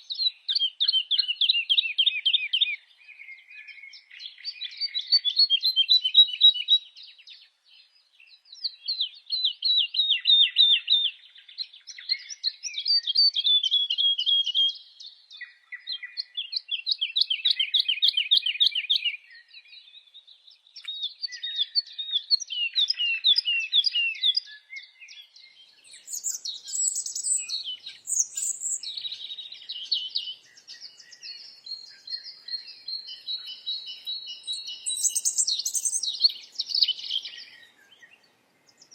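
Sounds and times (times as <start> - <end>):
songbird trilling: 21.3 - 38.9
higher sharp bird notes: 26.0 - 31.6.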